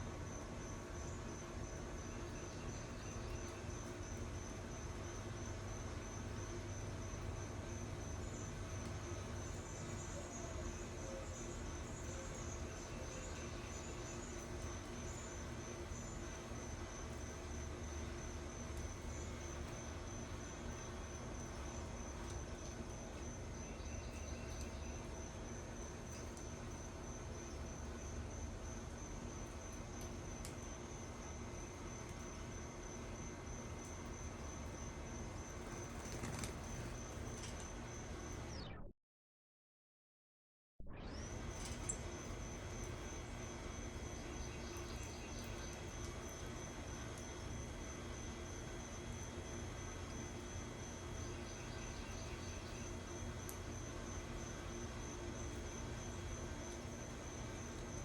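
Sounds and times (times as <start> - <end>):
low steady hum: 0.0 - 38.9
crickets trilling: 0.1 - 38.5, 41.2 - 58.0
insect chorus trilling: 7.1 - 18.0, 50.2 - 57.9
faint ticks: 53.4 - 53.7.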